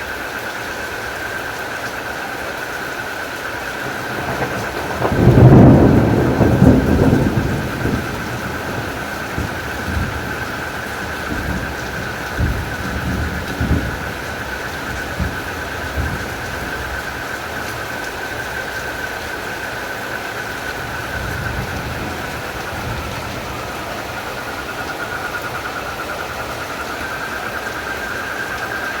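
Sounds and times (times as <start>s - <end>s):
frogs and crickets chorus: 0.0s - 29.0s
heavy rain hiss: 0.0s - 29.0s.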